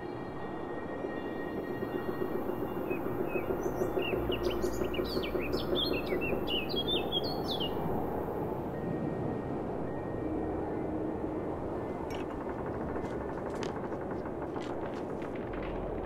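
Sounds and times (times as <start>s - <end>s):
songbird chirping: 1.1s - 8.0s
low rumble: 9.3s - 16.0s.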